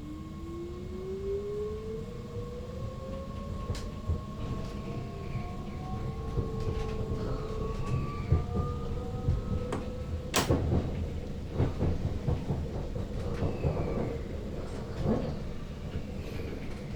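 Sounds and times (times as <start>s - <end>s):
wheels rumbling on rail: 2.0s - 16.9s
rail clicks: 6.3s - 16.9s.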